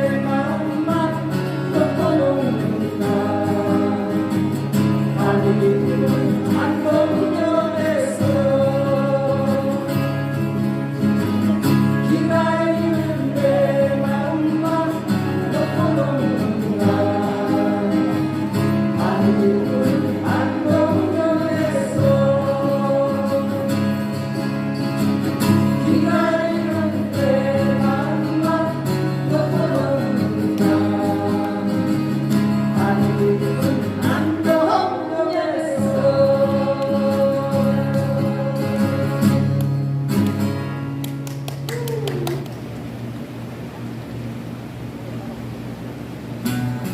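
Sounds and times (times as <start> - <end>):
person singing through pa: 0.0 - 10.2, 12.0 - 24.1, 25.7 - 39.8
strummed acoustic guitars: 0.0 - 41.7, 46.2 - 46.9.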